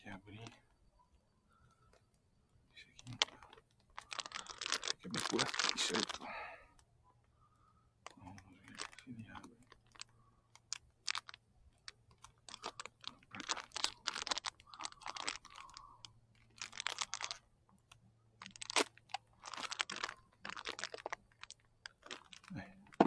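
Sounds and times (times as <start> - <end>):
plastic packaging crinkling: 3.0 - 6.4, 8.0 - 23.0.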